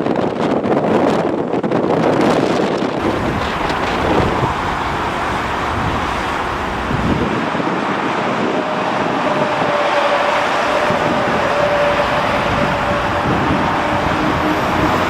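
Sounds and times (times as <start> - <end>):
wind on microphone: 0.0 - 15.0
jet engine noise: 3.0 - 15.0
steady whine: 3.0 - 15.0.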